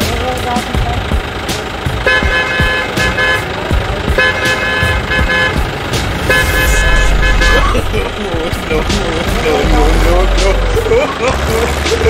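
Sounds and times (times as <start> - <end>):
vehicle horn honking: 2.0 - 3.6, 4.2 - 7.9
low rumble: 5.6 - 10.4.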